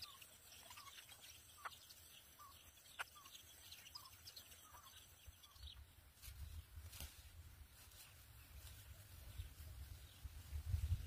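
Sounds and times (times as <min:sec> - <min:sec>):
faint bird chirps: 0:00.0 - 0:06.8.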